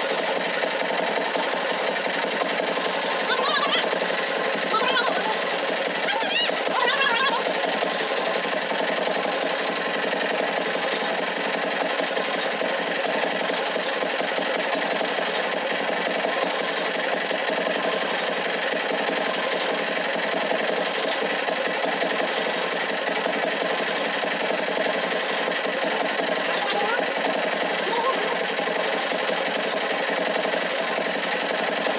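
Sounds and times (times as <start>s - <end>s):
machine rattling: 0.0s - 31.9s.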